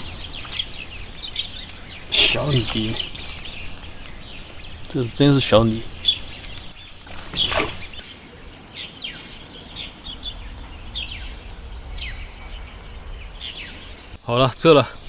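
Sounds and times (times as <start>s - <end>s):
falling bird chirps: 0.0s - 14.2s
insect trill: 0.0s - 15.0s.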